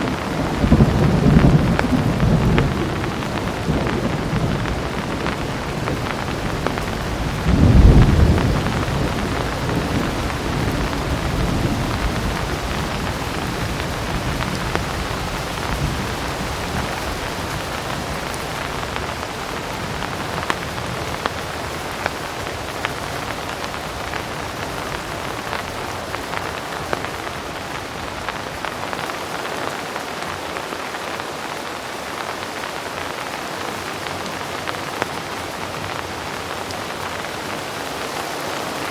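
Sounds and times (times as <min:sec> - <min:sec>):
low thunder rumble: 0:00.0 - 0:27.2
heavy rain: 0:00.0 - 0:38.9.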